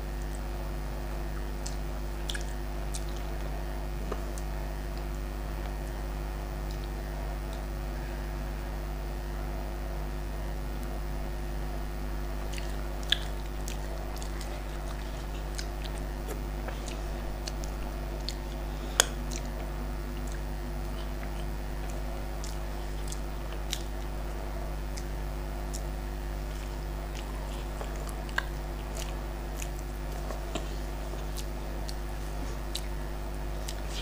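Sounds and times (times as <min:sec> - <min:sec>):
electrical hum: 0:00.0 - 0:34.0
person chewing food: 0:01.2 - 0:06.0, 0:12.4 - 0:34.0
small wet mouth clicks: 0:01.3 - 0:03.5, 0:12.5 - 0:24.1, 0:27.1 - 0:33.0.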